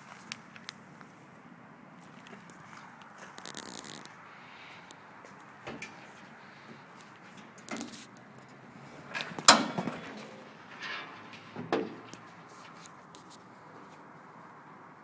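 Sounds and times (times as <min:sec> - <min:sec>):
door clunks: 0:08.8 - 0:12.5
handling knocks: 0:08.8 - 0:12.8.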